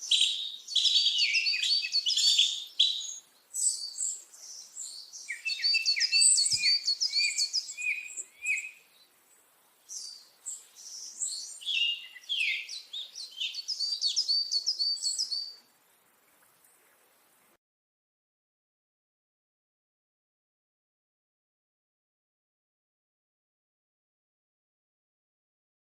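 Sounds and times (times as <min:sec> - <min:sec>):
songbird chirping and whistling: 0:00.0 - 0:09.1, 0:09.9 - 0:15.6.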